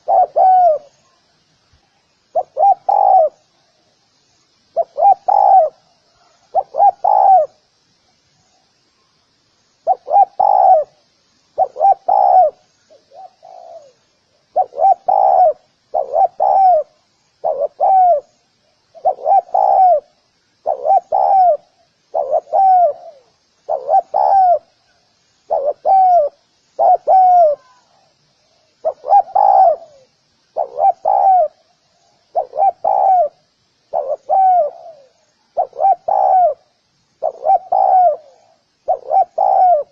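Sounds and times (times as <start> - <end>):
dove cooing: 0.0 - 0.9, 2.3 - 3.4, 4.7 - 7.6, 9.8 - 11.0, 11.6 - 18.3, 18.9 - 28.1, 28.8 - 39.9.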